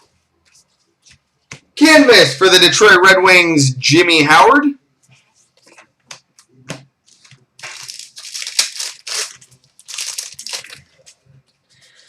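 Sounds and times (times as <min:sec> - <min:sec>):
foil wrapper tearing and crinkling: 0:07.1 - 0:11.2.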